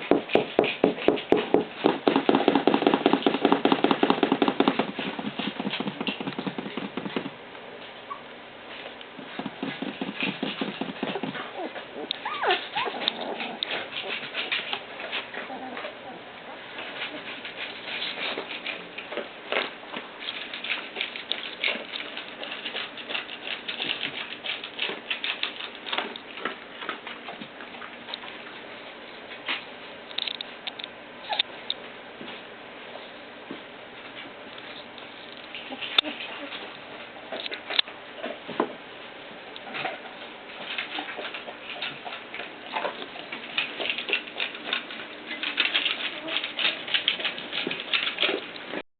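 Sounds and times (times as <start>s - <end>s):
puppies scrabbling and scratching: 0.0s - 31.5s, 33.0s - 48.8s
puppies squeaking: 8.0s - 8.3s, 9.7s - 14.8s, 31.2s - 31.5s, 35.6s - 36.7s.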